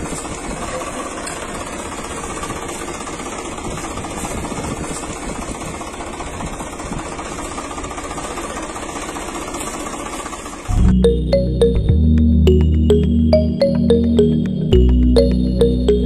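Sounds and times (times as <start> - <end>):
small motor with fast rattle: 0.0 - 10.7.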